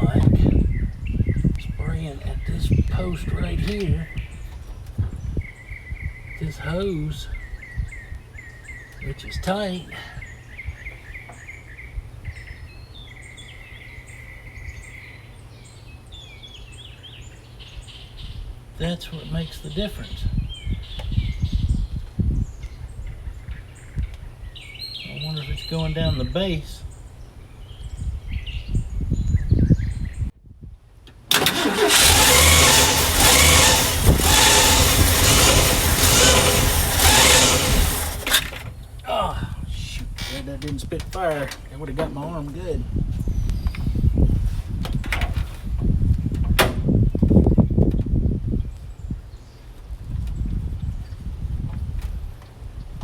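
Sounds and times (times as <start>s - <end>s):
songbirds chirping: 0.0s - 30.3s, 47.1s - 51.2s
car engine running loudly: 31.3s - 38.7s
engine pop: 31.3s - 38.8s.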